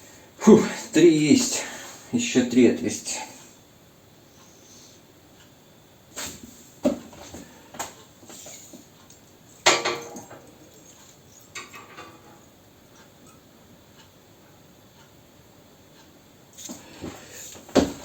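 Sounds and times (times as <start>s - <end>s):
metal knocks and clinks: 9.6s - 12.5s.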